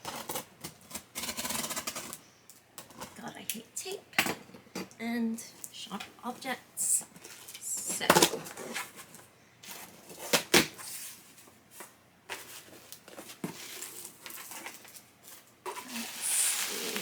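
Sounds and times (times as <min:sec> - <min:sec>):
cardboard and tape rustling: 0:07.1 - 0:17.0.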